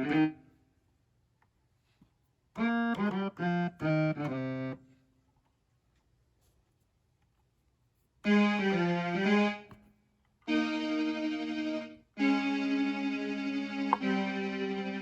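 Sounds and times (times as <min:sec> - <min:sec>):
keyboard playing piano-like notes: 0:00.0 - 0:00.3, 0:02.6 - 0:04.8, 0:08.2 - 0:09.8, 0:10.5 - 0:15.0.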